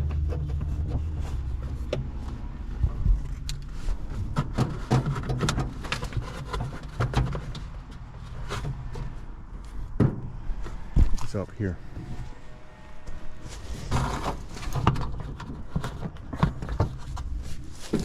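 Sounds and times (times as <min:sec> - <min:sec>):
hands handling parts and wiring: 0:00.0 - 0:11.4, 0:13.0 - 0:18.0
low hum: 0:08.0 - 0:17.8.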